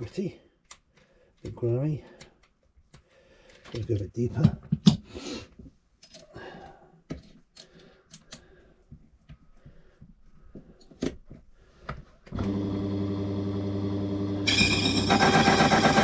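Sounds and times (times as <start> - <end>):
electric motor cutting key blank: 12.4 - 16.0.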